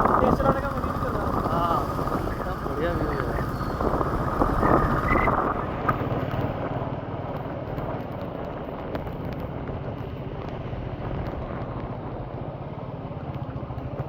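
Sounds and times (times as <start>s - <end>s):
motorcycle engine low rumble: 0.0s - 14.0s
wind and road noise: 0.0s - 14.0s.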